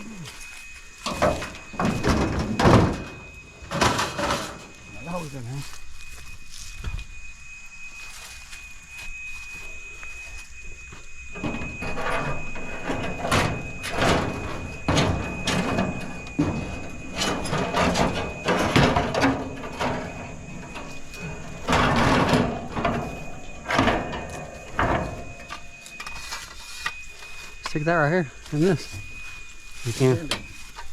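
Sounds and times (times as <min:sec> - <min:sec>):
scrap metal clanking and scraping: 0:00.3 - 0:05.8, 0:11.3 - 0:30.9.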